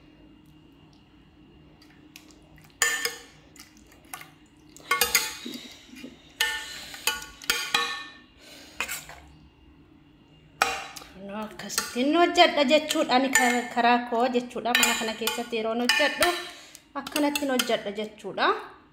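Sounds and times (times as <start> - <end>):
metal pots clanking: 2.8 - 3.3, 4.8 - 5.6, 6.4 - 8.2, 10.6 - 13.8, 14.7 - 16.5.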